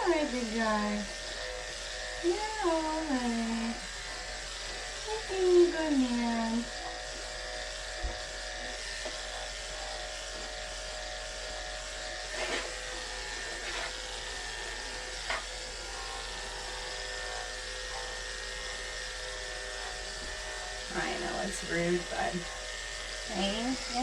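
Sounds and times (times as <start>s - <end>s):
electric clippers humming: 0.0s - 24.0s.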